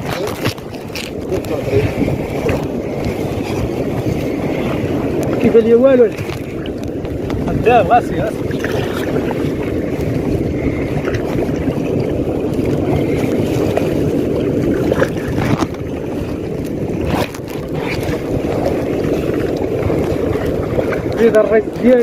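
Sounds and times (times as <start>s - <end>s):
water moving: 0.0s - 22.0s
wind rumbling on microphone: 0.0s - 22.0s
knocks or splashes: 8.3s - 10.2s.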